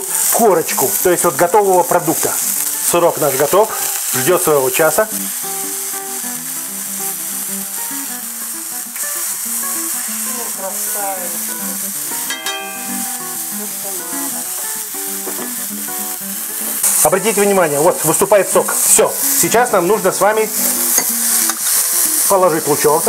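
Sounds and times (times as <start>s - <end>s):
background music: 0.0s - 23.0s
burger patties sizzling in oil: 0.0s - 23.0s
plucked note: 11.4s - 16.8s.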